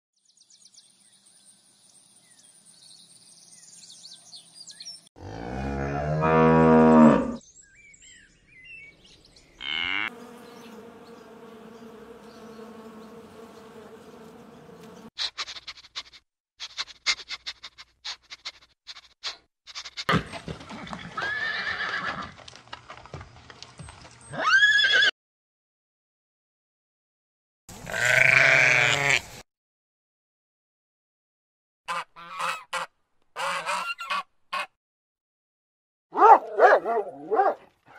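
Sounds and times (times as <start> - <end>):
cow mooing: 5.2 - 7.4, 9.6 - 10.2
horse whinnying: 21.1 - 22.3, 24.3 - 25.1.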